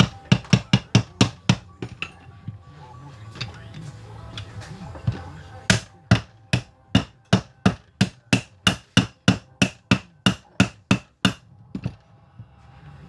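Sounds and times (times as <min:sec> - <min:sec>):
hand hammer striking metal: 0:00.0 - 0:02.2, 0:04.4 - 0:12.0.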